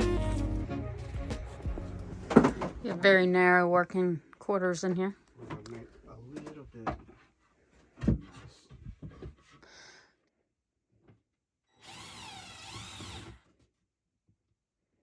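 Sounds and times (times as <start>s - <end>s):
power drill running: 11.8s - 13.4s.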